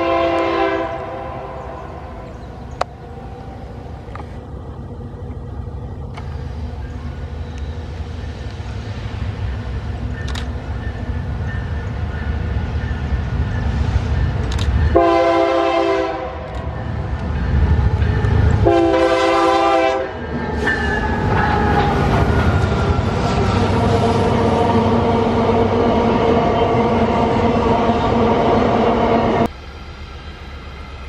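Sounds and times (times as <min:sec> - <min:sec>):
locomotive horn blasts: 0:00.0 - 0:02.8, 0:14.9 - 0:16.8, 0:18.6 - 0:21.7
train rumbling: 0:00.0 - 0:31.0.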